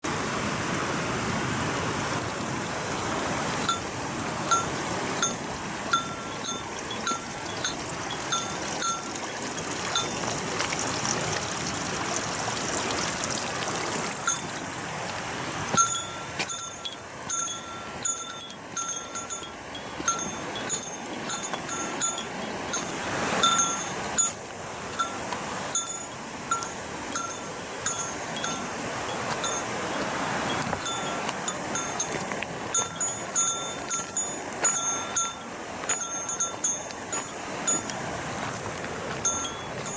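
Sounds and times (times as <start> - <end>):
waterfall rushing: 0.1 - 39.9
small bell jingling: 4.5 - 10.5, 14.2 - 14.7, 15.7 - 38.5, 39.1 - 39.9.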